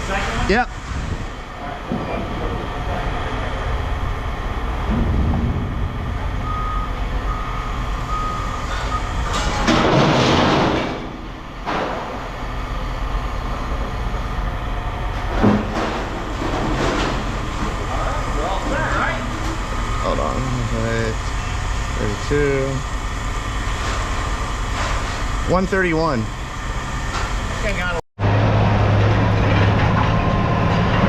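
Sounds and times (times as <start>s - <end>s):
heavy vehicle engine running: 0.0s - 31.0s
backup alarm beeping: 6.3s - 9.2s, 19.6s - 21.7s.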